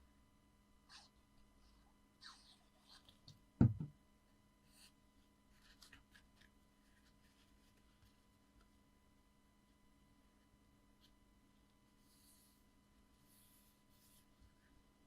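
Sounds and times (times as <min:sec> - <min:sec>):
dull thump on table: 0:03.6 - 0:03.9.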